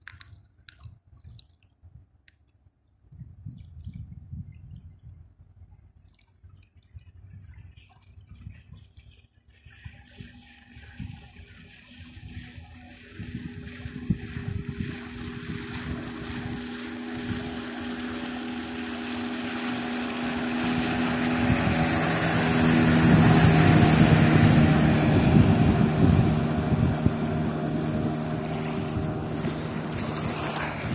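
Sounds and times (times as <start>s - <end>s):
wind on microphone: 3.1s - 30.9s
outboard motor running: 9.4s - 30.9s
water rushing: 9.9s - 30.9s.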